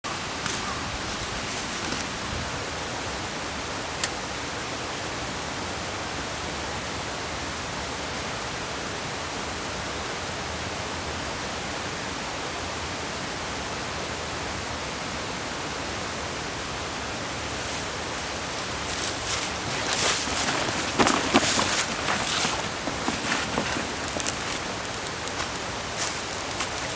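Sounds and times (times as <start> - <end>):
crackles and rustles: 0.1 - 3.4, 17.3 - 26.9.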